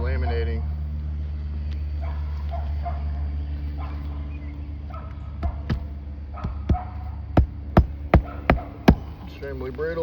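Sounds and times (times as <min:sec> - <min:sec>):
steady low rumble: 0:00.0 - 0:10.0
dog barking: 0:02.0 - 0:04.3, 0:04.9 - 0:07.3, 0:08.1 - 0:09.1
sharp knocks: 0:07.4 - 0:09.1.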